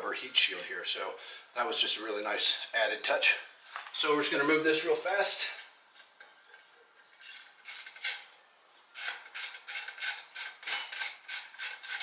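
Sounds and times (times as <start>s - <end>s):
hand tool scraping metal: 9.0s - 12.0s.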